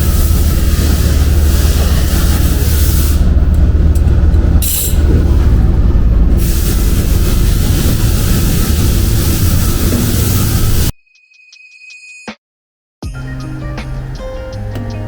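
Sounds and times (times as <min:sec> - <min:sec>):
burst of hissing air: 0:00.0 - 0:03.4, 0:04.6 - 0:05.1, 0:06.3 - 0:10.9
machine hiss: 0:00.0 - 0:03.4, 0:04.6 - 0:05.1, 0:06.3 - 0:10.9
workshop machine drone: 0:00.0 - 0:10.9.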